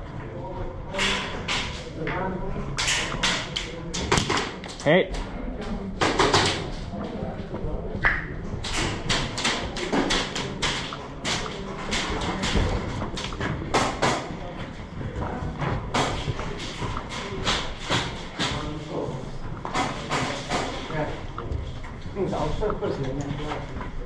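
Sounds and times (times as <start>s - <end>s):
sharp knocks and thuds: 8.7s - 14.4s.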